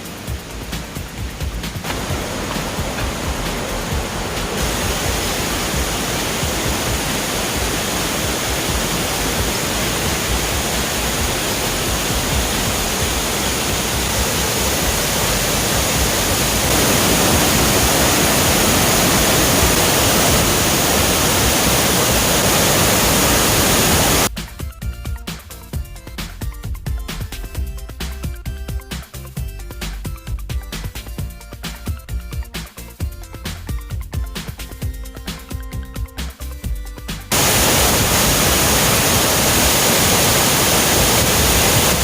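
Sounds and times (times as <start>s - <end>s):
waterfall rushing: 0.0s - 24.3s, 37.3s - 42.0s.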